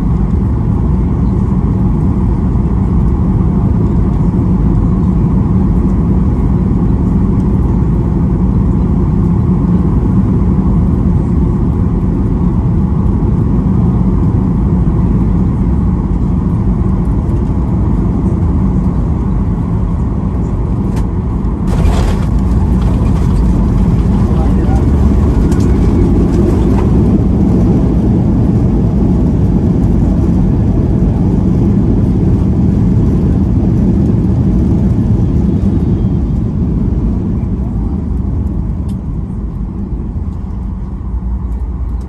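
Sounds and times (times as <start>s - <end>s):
airplane cabin rumble: 17.4s - 42.0s.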